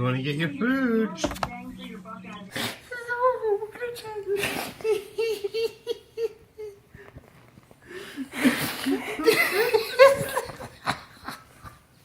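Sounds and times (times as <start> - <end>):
wheezy laughter: 4.4 - 6.9, 8.2 - 11.8.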